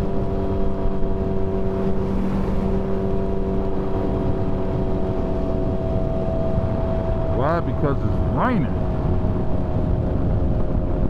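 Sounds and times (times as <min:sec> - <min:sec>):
motorcycle engine cruising: 0:00.0 - 0:07.4
wind noise: 0:00.0 - 0:11.0.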